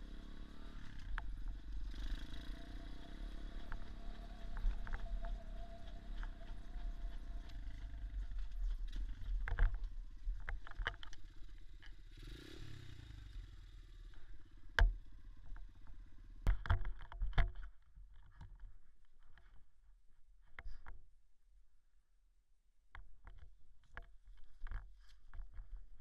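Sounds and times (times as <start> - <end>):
motorcycle engine running: 0.0 - 16.8
sharp knocks and rattles: 16.4 - 18.6.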